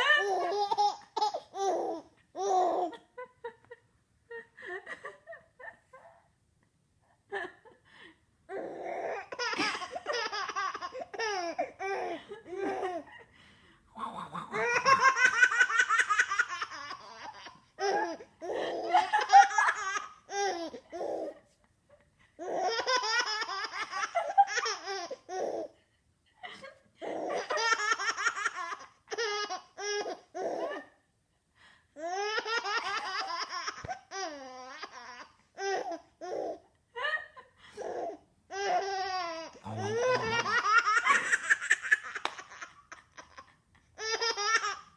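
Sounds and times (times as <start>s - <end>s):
baby girl laughing hysterically: 0.0s - 2.0s, 9.2s - 13.2s, 14.6s - 21.3s, 22.4s - 25.7s, 27.1s - 30.8s, 32.1s - 36.6s, 37.9s - 44.9s.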